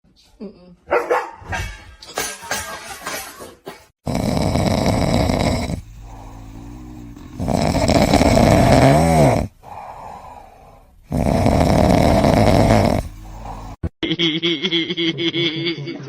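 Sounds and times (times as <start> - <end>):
pet snoring: 4.0 - 13.8.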